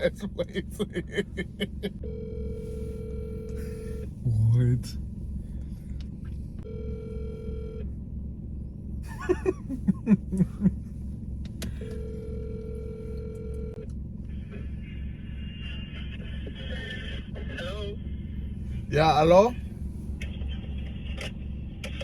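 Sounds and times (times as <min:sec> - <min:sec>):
low hum: 0:00.0 - 0:22.0
telephone ringback tone: 0:02.0 - 0:04.0, 0:06.7 - 0:07.8, 0:11.8 - 0:13.8.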